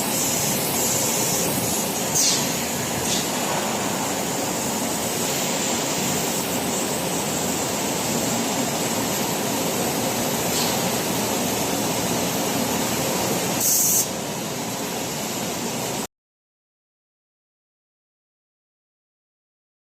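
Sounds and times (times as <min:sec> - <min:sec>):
machine rushing noise: 0:00.0 - 0:13.6
sharp hiss: 0:00.0 - 0:14.2.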